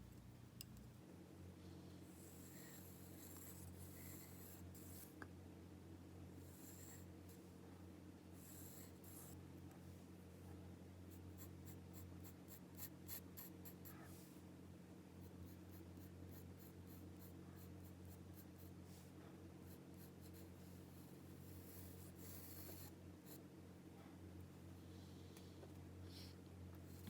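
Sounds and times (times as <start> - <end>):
pencil scratching on paper: 2.1 - 5.2, 6.5 - 7.1, 8.4 - 9.4, 11.1 - 14.2, 15.2 - 23.4.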